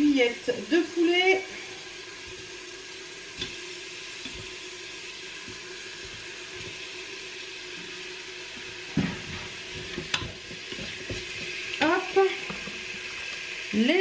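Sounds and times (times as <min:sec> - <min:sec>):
chicken sizzling in a pot: 0:00.0 - 0:14.0
wooden spatula scraping a pot: 0:09.0 - 0:13.1.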